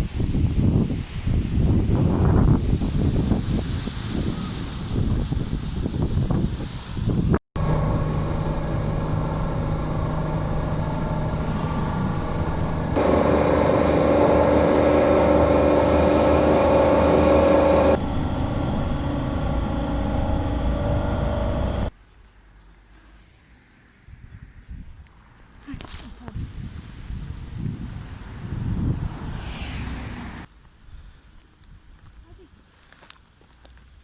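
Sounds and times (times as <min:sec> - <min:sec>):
road vehicle humming: 0:07.6 - 0:22.0, 0:26.4 - 0:30.5.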